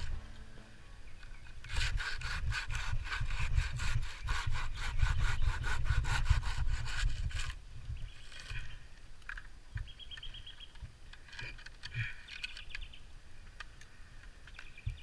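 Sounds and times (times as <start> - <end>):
small birds chirping: 7.8 - 15.0.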